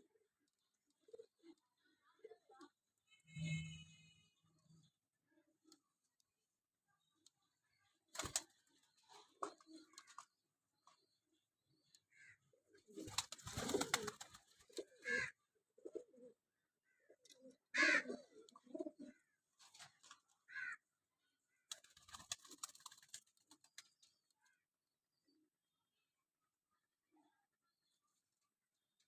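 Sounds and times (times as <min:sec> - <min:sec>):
pigeons cooing: 0:12.8 - 0:16.4, 0:17.2 - 0:19.3.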